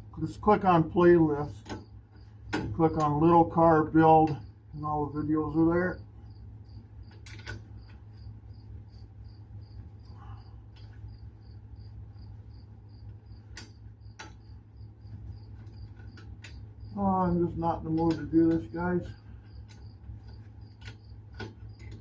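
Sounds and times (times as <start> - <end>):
high cricket-like chirp: 0.9 - 22.0.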